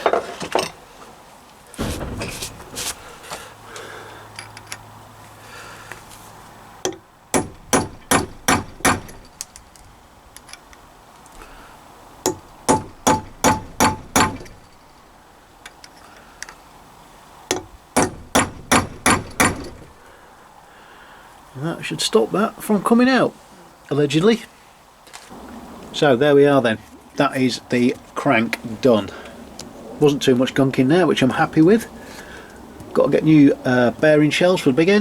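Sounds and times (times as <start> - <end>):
handling clatter: 1.7 - 3.6
hammer striking metal: 6.9 - 9.3, 12.3 - 14.6, 17.5 - 20.0.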